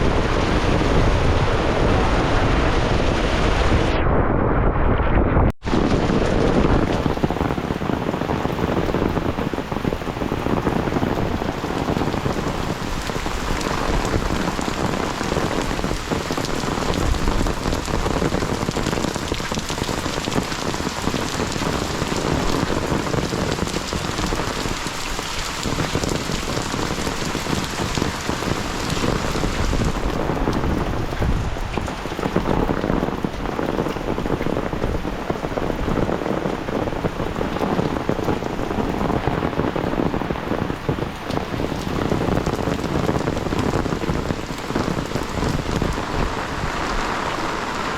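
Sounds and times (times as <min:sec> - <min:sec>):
heavy rain downpour: 0:00.0 - 0:03.9, 0:05.6 - 0:47.9.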